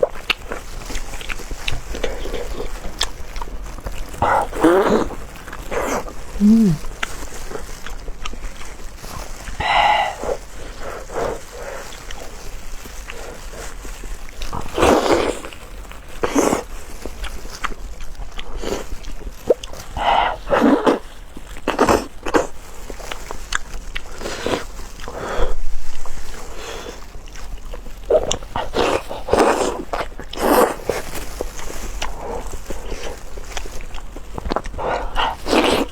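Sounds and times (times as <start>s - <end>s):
wet chewing: 0.0s - 35.9s
lip smacking: 1.0s - 7.8s.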